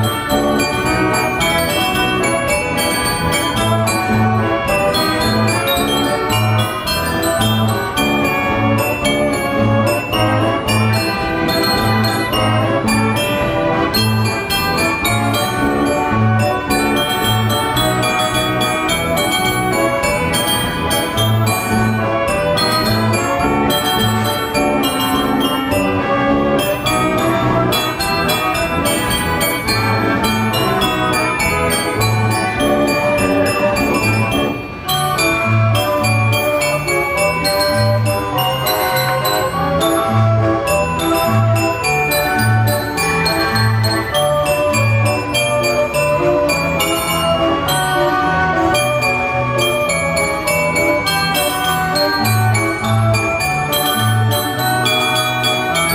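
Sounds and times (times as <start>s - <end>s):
band organ playing a tune: 0.0s - 55.9s
bells ringing: 0.0s - 55.9s.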